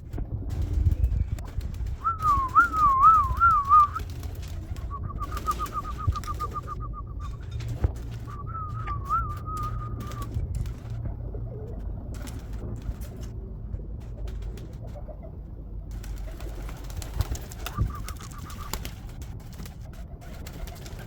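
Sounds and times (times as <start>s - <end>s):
pigeons cooing: 1.8s - 12.6s, 16.0s - 19.1s.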